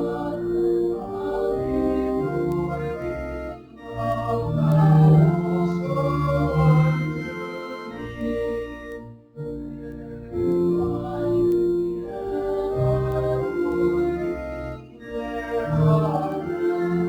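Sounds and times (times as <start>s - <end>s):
church organ playing a hymn: 0.0s - 17.0s.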